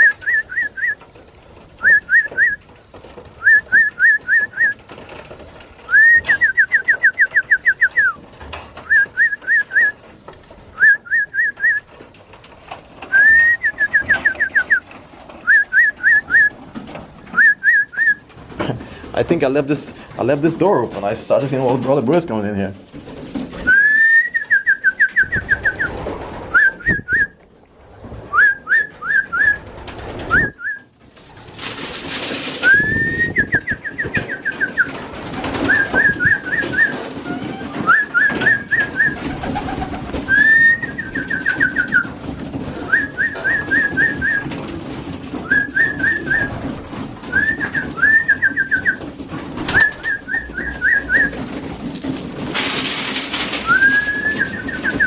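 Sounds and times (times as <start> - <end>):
pigeon chirping call: 0.0 - 1.1, 5.8 - 8.2, 13.0 - 16.6, 32.6 - 44.6, 45.4 - 51.5
wings fluttering: 0.0 - 22.2, 22.8 - 55.0.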